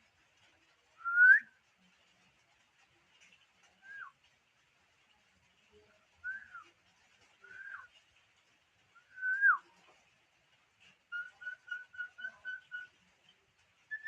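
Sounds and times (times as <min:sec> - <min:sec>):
pet bird whistling: 0:11.1 - 0:13.0.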